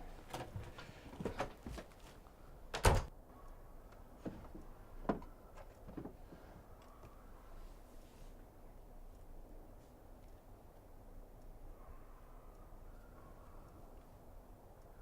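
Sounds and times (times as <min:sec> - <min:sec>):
door shutting thud: 0:02.8 - 0:03.1.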